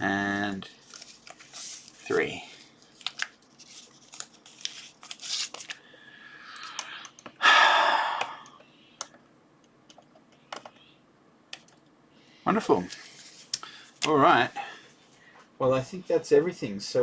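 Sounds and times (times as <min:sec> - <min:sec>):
plastic packaging crinkling: 0:00.7 - 0:05.9
plastic tearing: 0:00.8 - 0:05.8.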